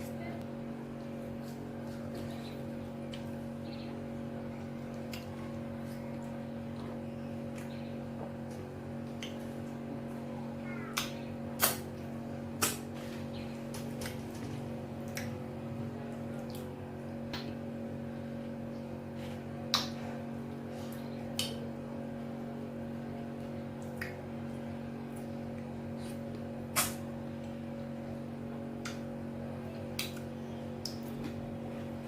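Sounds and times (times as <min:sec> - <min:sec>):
steady background hum: 0:00.0 - 0:32.0
wet mouth clicks and smacks: 0:11.0 - 0:11.8, 0:26.8 - 0:27.0.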